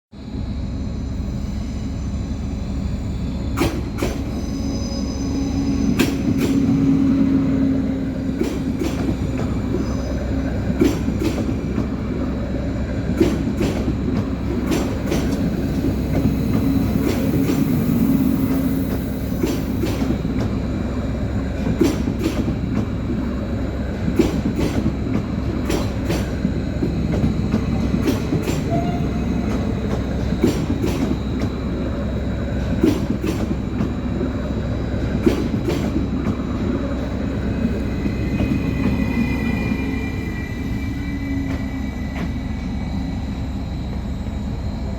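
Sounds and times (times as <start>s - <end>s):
electric train running hum: 0.1s - 44.9s
high wheel squeal: 4.2s - 8.3s, 27.7s - 30.3s, 37.6s - 43.1s.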